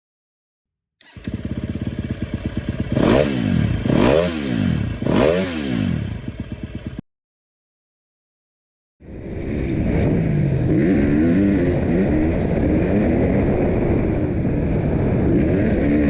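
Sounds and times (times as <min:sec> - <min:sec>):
motorcycle engine revving: 0:01.0 - 0:07.0, 0:09.4 - 0:16.0.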